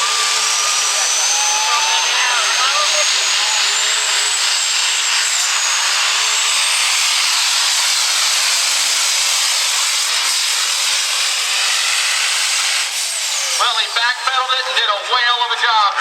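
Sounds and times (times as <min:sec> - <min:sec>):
diesel engine roaring: 0:00.0 - 0:16.0
high whistle: 0:00.1 - 0:03.8.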